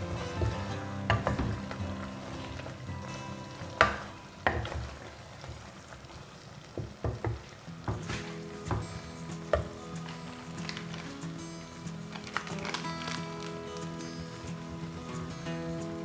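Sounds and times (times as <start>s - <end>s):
soft background music: 0.0s - 6.1s, 7.3s - 16.0s
food sizzling in a frying pan: 0.0s - 16.0s
utensil knocking against pan: 0.3s - 2.0s, 3.8s - 5.1s, 6.8s - 9.8s.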